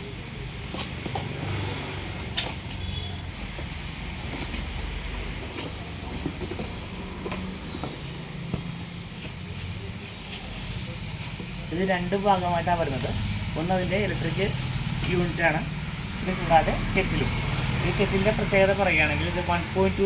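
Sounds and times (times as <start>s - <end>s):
cardboard packaging rustling: 2.5s - 11.8s.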